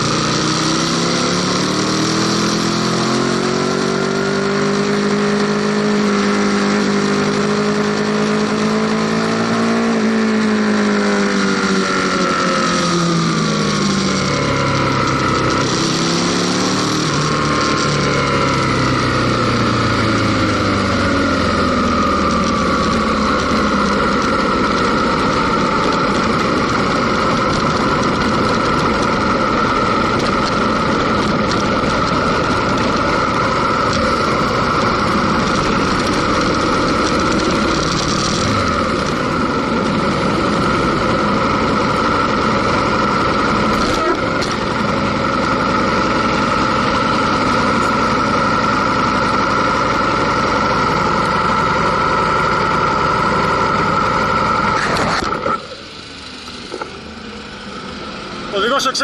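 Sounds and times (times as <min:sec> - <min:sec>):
motorcycle engine: 0:00.0 - 0:59.0
dense rushing noise: 0:12.1 - 0:59.0.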